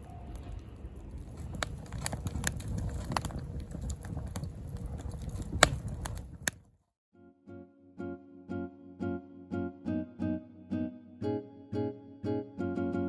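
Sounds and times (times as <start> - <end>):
wood fire crackling and popping: 0.0 - 6.8.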